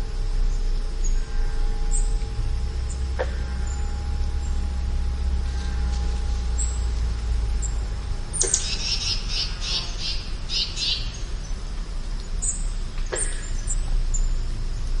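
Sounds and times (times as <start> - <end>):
low outdoor rumble: 0.0 - 15.0
songbird singing: 0.0 - 15.0
thin high whistled bird calls: 5.5 - 11.3.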